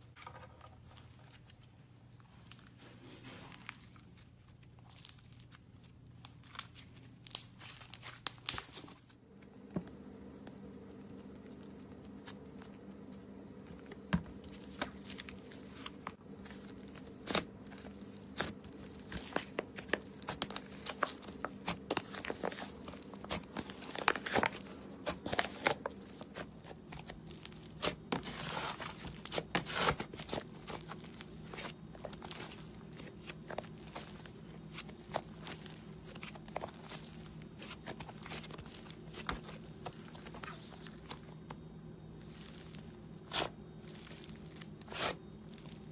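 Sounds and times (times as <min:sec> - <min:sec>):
slime crackling and popping: 0:06.2 - 0:08.8, 0:14.6 - 0:41.6, 0:42.2 - 0:45.9
steady low hum: 0:09.0 - 0:45.9.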